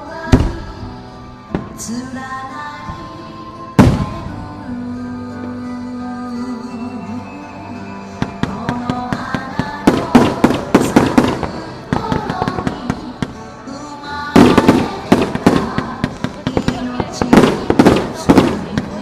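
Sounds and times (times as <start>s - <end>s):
fireworks bangs and crackles: 0.3s - 0.7s, 3.8s - 4.4s, 8.2s - 13.5s, 14.3s - 19.0s.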